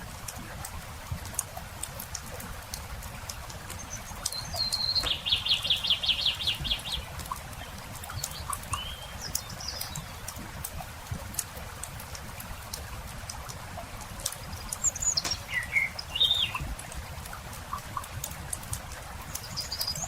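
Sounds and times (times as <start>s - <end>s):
campfire crackling: 0.0s - 20.0s
bird chirps: 3.8s - 7.1s, 8.1s - 10.2s, 14.5s - 16.6s
songbird trilling: 3.9s - 7.0s, 8.2s - 10.2s, 14.5s - 16.6s.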